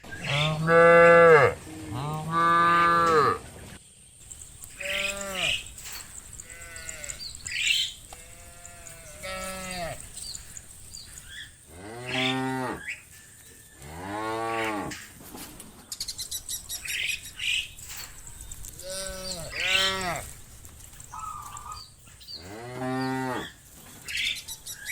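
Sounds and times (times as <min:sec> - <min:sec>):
cattle mooing: 0:00.2 - 0:03.4, 0:04.7 - 0:10.5, 0:11.7 - 0:13.0, 0:18.8 - 0:20.4, 0:22.4 - 0:23.6.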